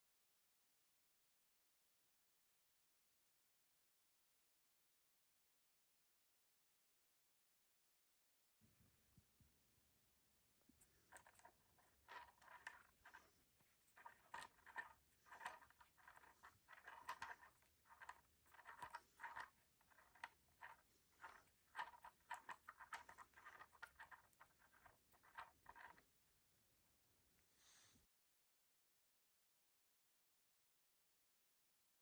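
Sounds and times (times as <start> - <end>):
faint scraping and rustling: 10.7 - 26.4.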